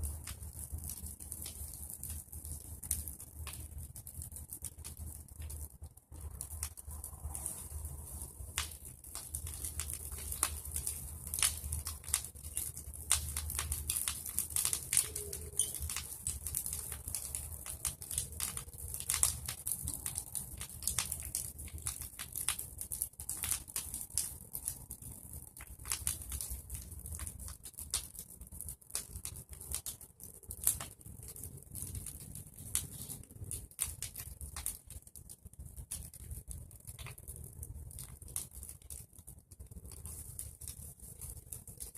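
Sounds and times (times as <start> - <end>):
bonfire crackling and popping: 0.0 - 41.9
hiss of burning: 6.2 - 22.6, 39.8 - 41.9.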